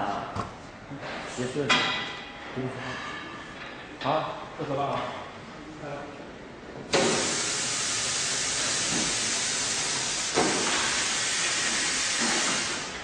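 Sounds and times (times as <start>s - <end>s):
compressed air hissing: 6.9s - 13.0s.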